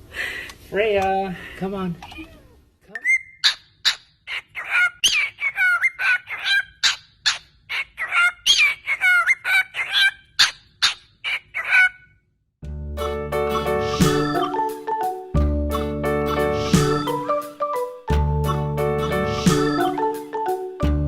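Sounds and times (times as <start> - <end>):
bird whistling and chirping: 3.0 - 11.0.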